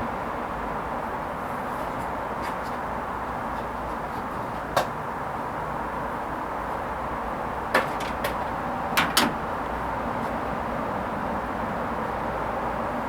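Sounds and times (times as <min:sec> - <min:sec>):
washing machine clicks and knocks: 0:07.7 - 0:09.5.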